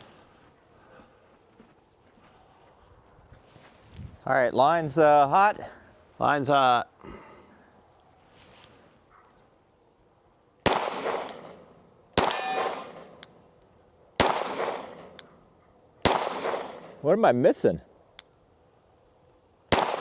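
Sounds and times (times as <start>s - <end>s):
pistol shots echoing: 10.6s - 13.4s, 14.2s - 15.4s, 16.0s - 17.0s, 19.7s - 20.0s
steel target clanging: 12.2s - 13.2s.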